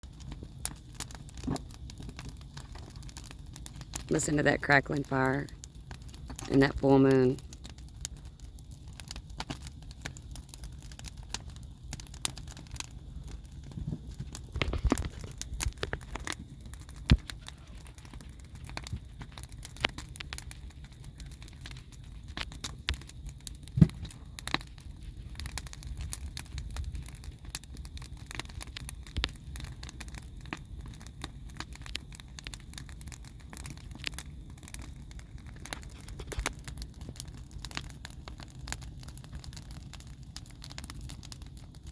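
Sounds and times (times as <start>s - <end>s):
low rumble of burning: 0.0s - 41.9s
wood fire crackling: 0.0s - 41.9s
sharp pops and snaps: 13.8s - 20.7s, 21.4s - 24.6s.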